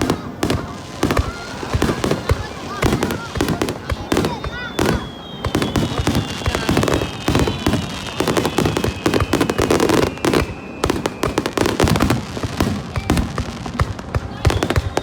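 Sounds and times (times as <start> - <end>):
fireworks bangs and crackling: 0.0 - 15.0
faint whistling descending: 0.7 - 11.8, 14.5 - 15.0.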